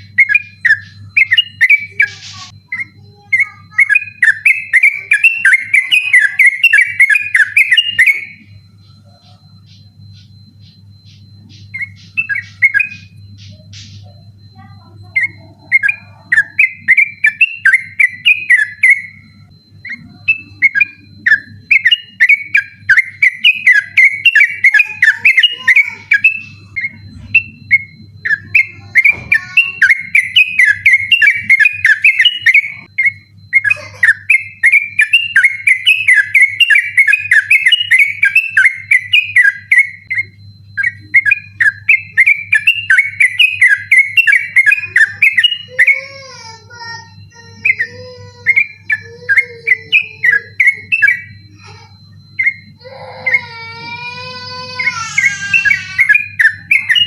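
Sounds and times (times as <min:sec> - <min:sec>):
bulbul singing rolling song: 0:00.0 - 0:57.0
faint high tone: 0:44.8 - 0:56.2.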